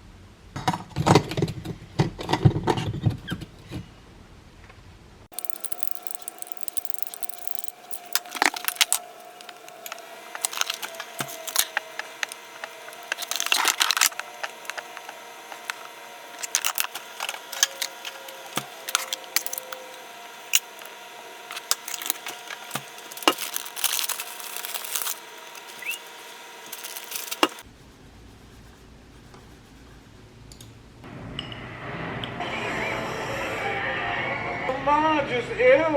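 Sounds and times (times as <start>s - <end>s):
faint steady hum: 5.0s - 30.9s
small objects clicking and rustling: 5.3s - 27.6s.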